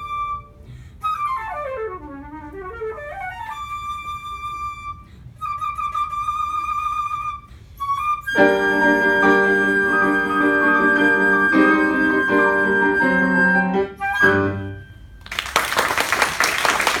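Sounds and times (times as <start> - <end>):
flute holding high note: 0.0 - 15.2
piano chords: 8.4 - 15.0
applause: 15.2 - 17.0.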